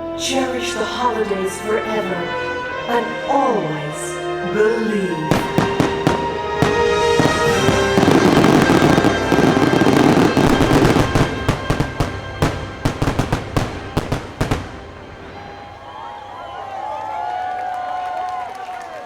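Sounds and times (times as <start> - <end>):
music playing: 0.0 - 16.9
fireworks bangs and crackling: 5.2 - 16.6.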